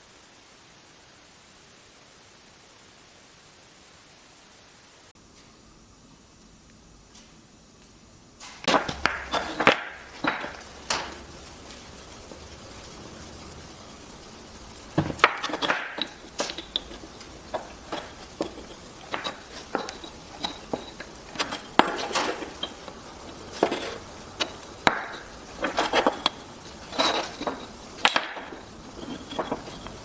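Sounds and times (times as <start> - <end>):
wood clacking and knocking: 8.5 - 12.4, 14.9 - 30.0.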